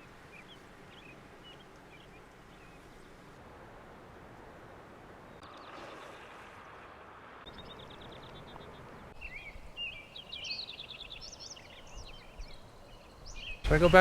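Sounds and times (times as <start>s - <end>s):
small songbirds singing: 0.0s - 3.2s, 7.4s - 14.0s
steady background hiss: 7.0s - 14.0s.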